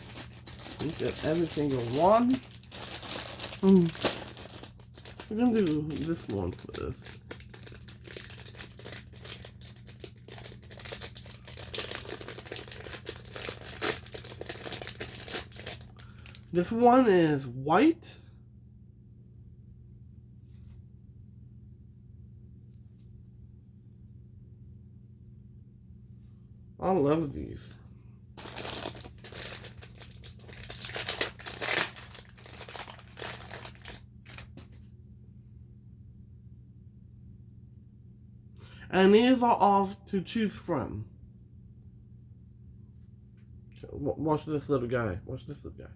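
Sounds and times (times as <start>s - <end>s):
packaging crinkling: 0.0s - 16.6s, 28.4s - 34.8s.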